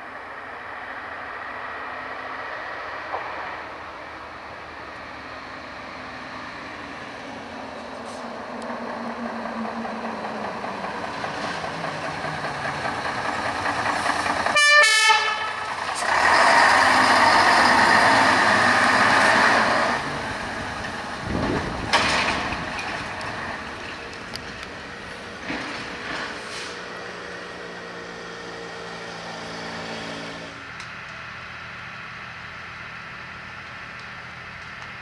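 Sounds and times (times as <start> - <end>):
heavy vehicle running: 0.0 - 35.0
short horn toot: 14.6 - 15.7.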